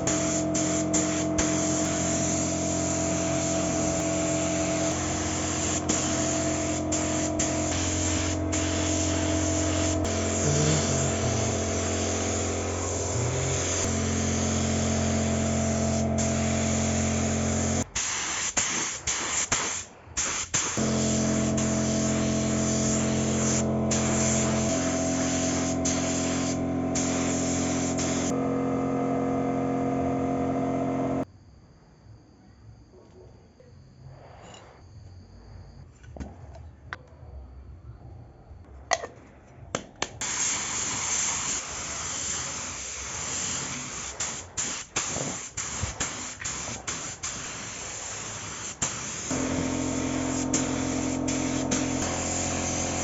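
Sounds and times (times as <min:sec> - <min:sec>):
spray gun motor buzzing: 0:00.0 - 0:17.8, 0:20.8 - 0:31.2, 0:48.8 - 0:53.0
paint spraying hiss: 0:00.0 - 0:28.4, 0:40.2 - 0:53.0.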